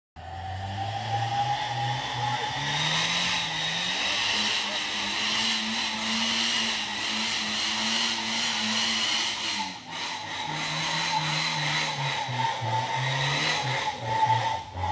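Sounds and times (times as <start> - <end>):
steady high whine: 0.2 - 10.5
pickup engine revving: 0.2 - 14.9.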